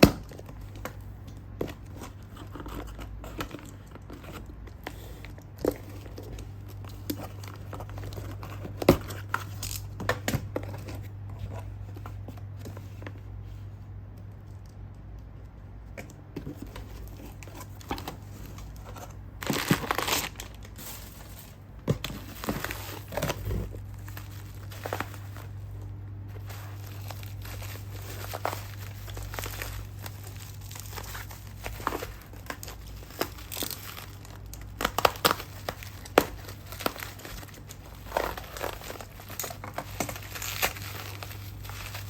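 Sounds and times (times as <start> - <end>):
low steady hum: 0.0 - 42.0
packaging being torn and crinkled: 17.0 - 42.0.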